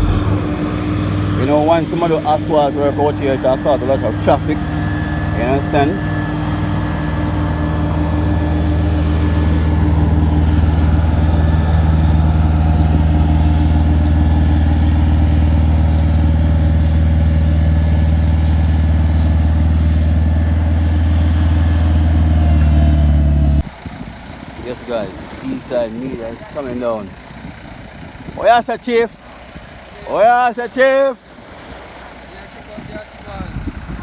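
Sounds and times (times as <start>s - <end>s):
heavy vehicle engine idling: 0.0s - 30.6s.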